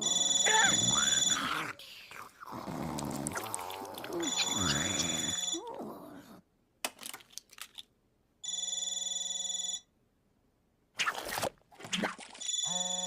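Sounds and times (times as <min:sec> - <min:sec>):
telephone ringing: 0:00.0 - 0:01.4, 0:04.2 - 0:05.6, 0:08.4 - 0:09.9, 0:12.5 - 0:13.0.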